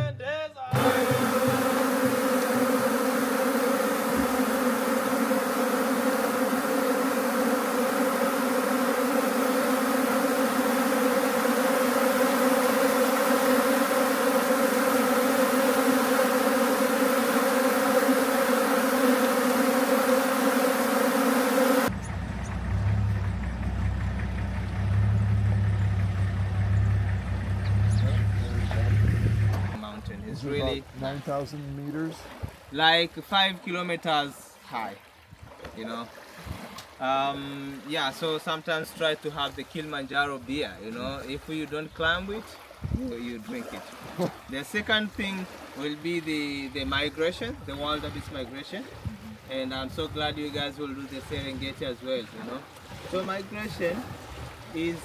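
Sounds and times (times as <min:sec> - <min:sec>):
bee swarm buzzing: 0:00.8 - 0:29.8
vehicle engine rumbling: 0:21.9 - 0:30.2.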